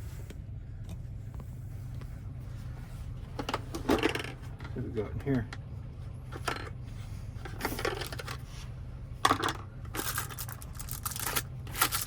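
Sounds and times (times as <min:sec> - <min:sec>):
low hum: 0:00.0 - 0:12.0
keys clinking and rattling: 0:10.0 - 0:12.0.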